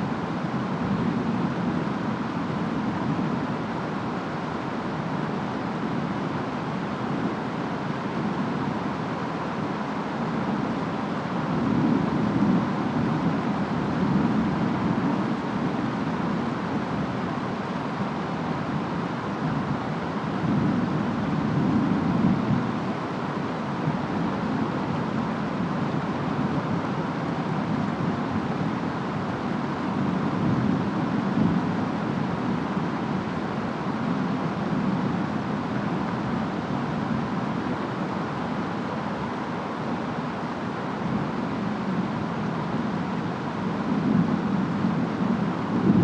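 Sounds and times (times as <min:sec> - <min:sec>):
steady rain and wind: 0:00.0 - 0:46.0.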